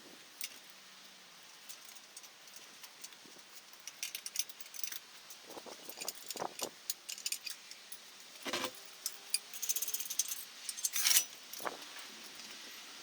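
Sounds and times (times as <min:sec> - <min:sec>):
metallic clinking and jingling: 0:01.6 - 0:12.6.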